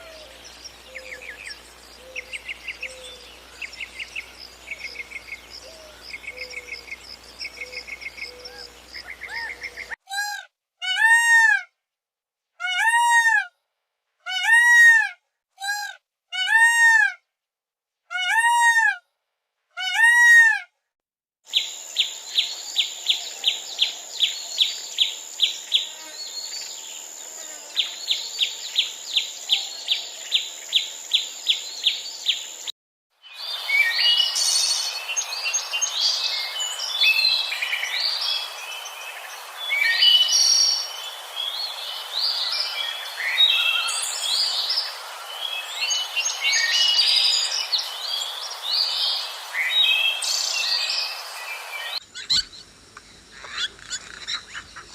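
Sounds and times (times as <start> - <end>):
birds chirping chorus: 0.0 - 10.0, 33.3 - 54.9.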